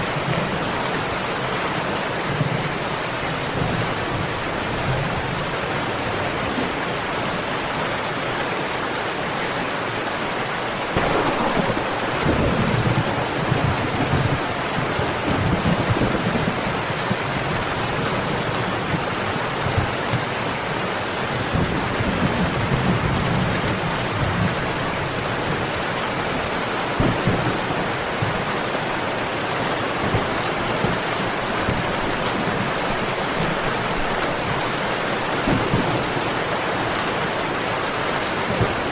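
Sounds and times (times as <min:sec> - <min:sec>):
heavy rain: 0:00.0 - 0:38.9
wood fire crackling pops: 0:11.0 - 0:16.0
low rumble of thunder: 0:11.0 - 0:18.3.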